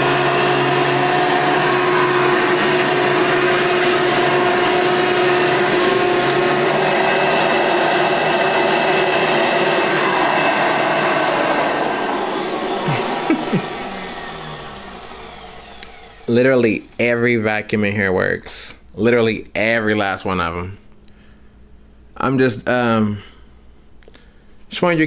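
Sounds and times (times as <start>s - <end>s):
vacuum cleaner motor running: 0.0s - 17.8s.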